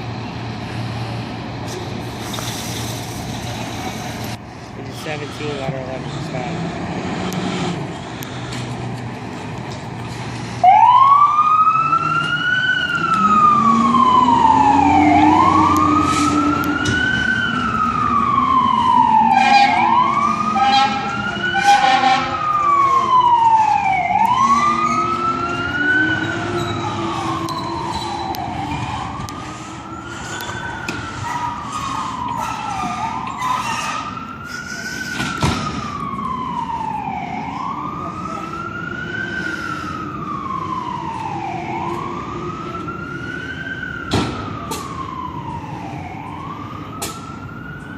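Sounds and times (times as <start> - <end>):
fire engine siren wailing: 5.0 - 47.9
horn blasts: 19.3 - 19.9, 20.6 - 22.4.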